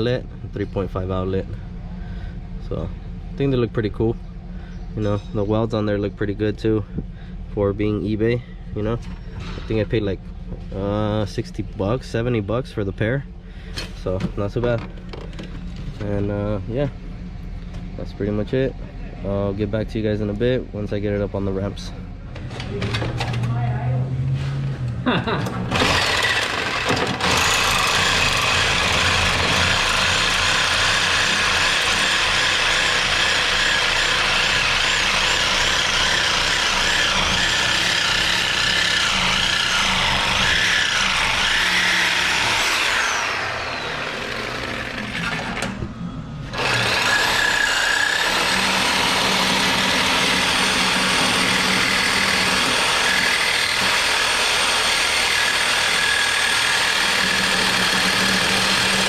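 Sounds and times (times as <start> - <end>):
power tools running: 25.4 - 59.0.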